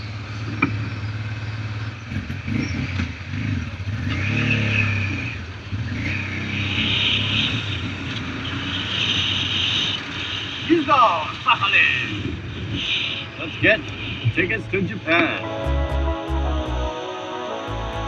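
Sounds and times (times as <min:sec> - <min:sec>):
motorcycle engine revving: 0:00.1 - 0:10.7, 0:12.1 - 0:16.9.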